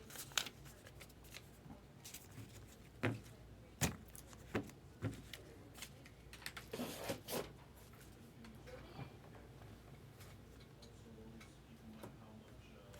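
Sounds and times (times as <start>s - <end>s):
cards rustling: 0.0s - 2.8s.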